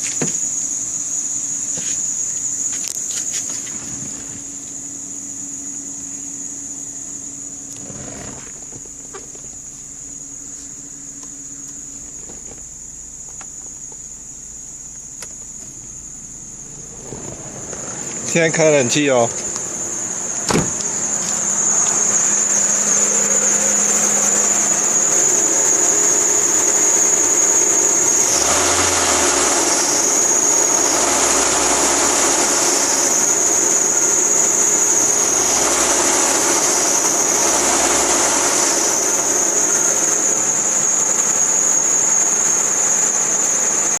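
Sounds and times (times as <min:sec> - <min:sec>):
car engine running: 0:00.0 - 0:44.0
belt squealing: 0:07.7 - 0:09.1.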